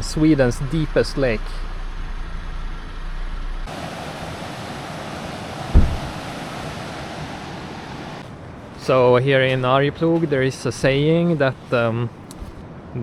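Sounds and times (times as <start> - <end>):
outdoor rushing noise: 0.0 - 12.6
low vehicle hum: 0.0 - 13.0
low thump: 5.7 - 6.2.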